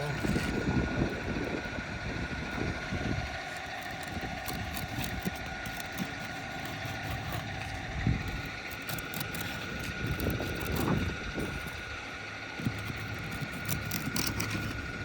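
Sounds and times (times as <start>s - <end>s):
steady mechanical hum: 0.0s - 15.0s
tool scraping and knocking on shingles: 3.3s - 15.0s.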